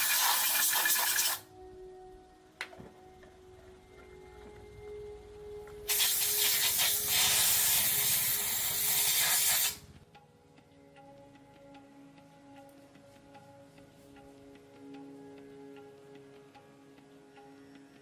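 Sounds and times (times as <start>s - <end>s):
pressurized jet hissing: 0.0s - 1.4s, 5.9s - 9.8s.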